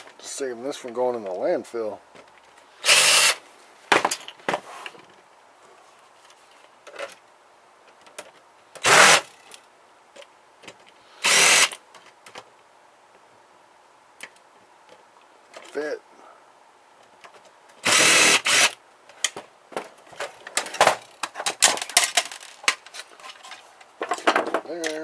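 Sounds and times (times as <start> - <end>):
power drill running: 2.8 - 3.4, 8.8 - 9.3, 11.2 - 11.8, 17.8 - 18.8.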